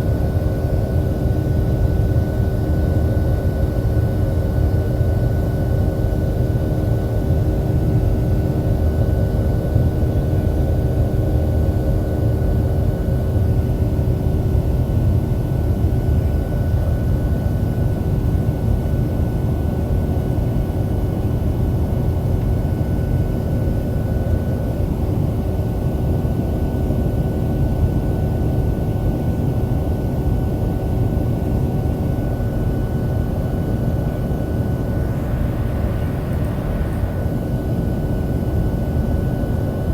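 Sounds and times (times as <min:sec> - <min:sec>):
jet engines in cabin: 0:00.0 - 0:39.9
constant hums: 0:27.1 - 0:39.9
thin high whine: 0:33.4 - 0:39.2.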